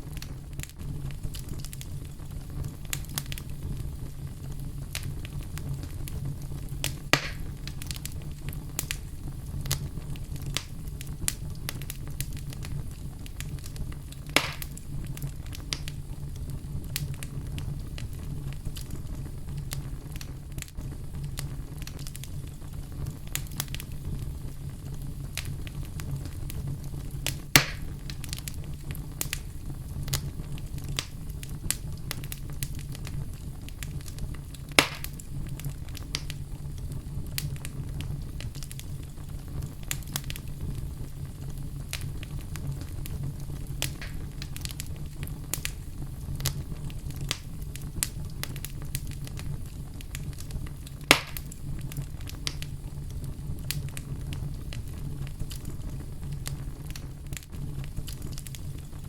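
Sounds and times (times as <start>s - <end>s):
wood fire crackling: 0.0s - 59.0s
loud sharp pops: 6.8s - 7.5s, 14.3s - 14.8s, 27.5s - 27.9s, 34.7s - 35.2s, 43.8s - 44.6s, 51.1s - 51.5s.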